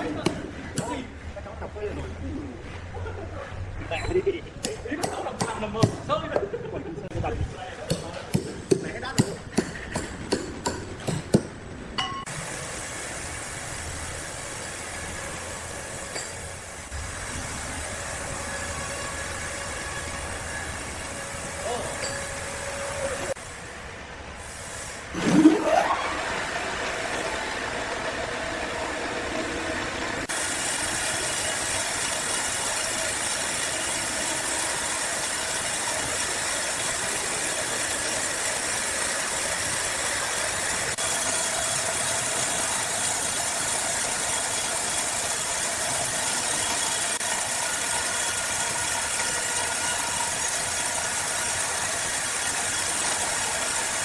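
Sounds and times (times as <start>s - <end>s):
sawmill machinery whining: 12.3s - 23.4s, 25.2s - 54.0s.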